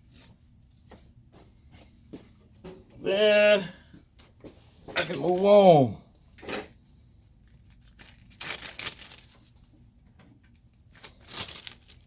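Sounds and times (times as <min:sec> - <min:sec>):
bag crinkling and rustling: 0:07.4 - 0:09.7, 0:10.6 - 0:12.0.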